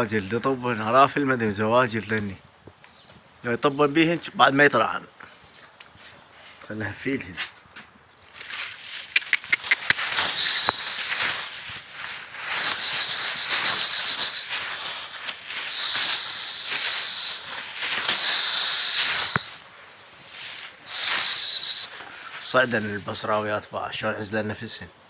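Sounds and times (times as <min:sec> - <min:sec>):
loud high hissing buzz: 0:10.2 - 0:23.0.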